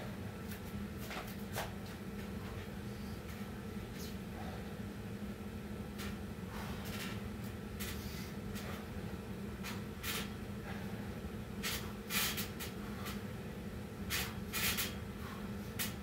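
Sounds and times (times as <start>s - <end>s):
steady low hum: 0.0s - 16.0s
man breathing hard: 4.3s - 4.9s, 6.4s - 7.2s, 10.5s - 12.1s, 15.0s - 16.0s.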